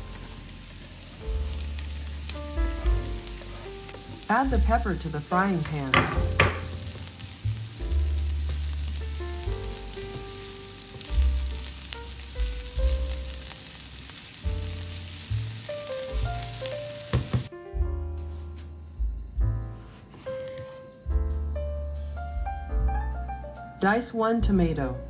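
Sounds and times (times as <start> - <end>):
vegetables sizzling in a frying pan: 0.0 - 17.5
soft background music: 0.0 - 25.0.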